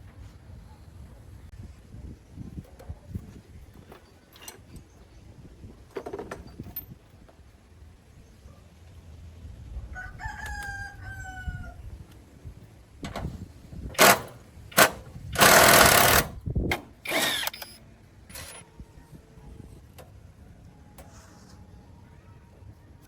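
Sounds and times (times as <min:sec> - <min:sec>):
rooster crowing: 0:09.9 - 0:11.9.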